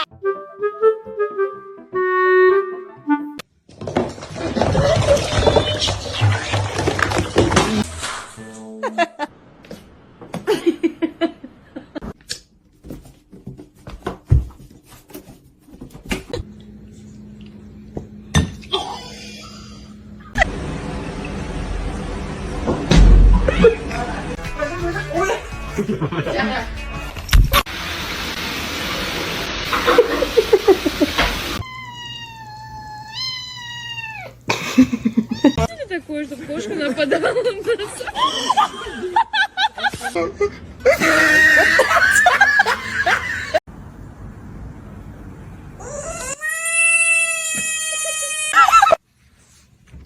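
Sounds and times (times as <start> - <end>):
cat meowing: 31.6 - 34.4.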